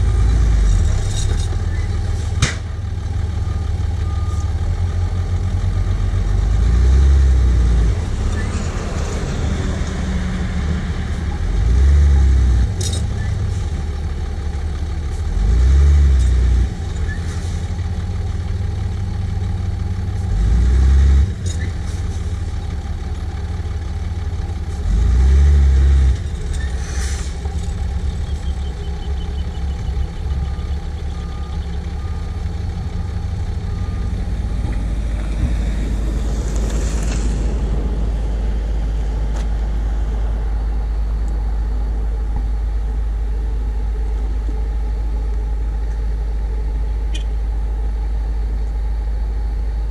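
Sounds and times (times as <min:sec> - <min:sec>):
wheel loader diesel drone: 0:00.0 - 0:49.9
truck diesel engine revving: 0:03.0 - 0:42.0.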